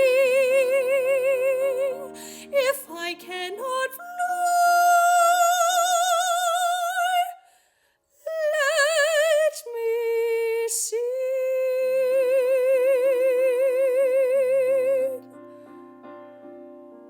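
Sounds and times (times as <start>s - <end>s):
piano chords: 0.0s - 7.3s, 13.1s - 17.0s
woman singing with vibrato: 0.0s - 7.5s, 8.2s - 15.2s.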